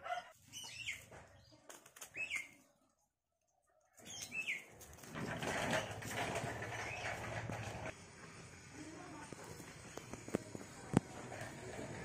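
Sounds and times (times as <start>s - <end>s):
bird chirping: 0.4s - 2.6s, 3.9s - 4.7s.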